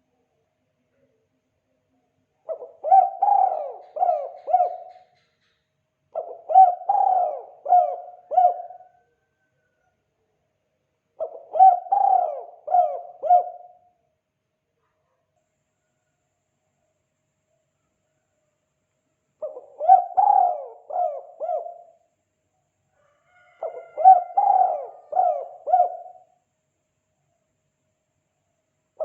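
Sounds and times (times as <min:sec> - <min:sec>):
dove cooing: 0:02.4 - 0:05.3, 0:06.2 - 0:09.4, 0:11.2 - 0:13.9, 0:19.4 - 0:22.1, 0:23.4 - 0:26.4.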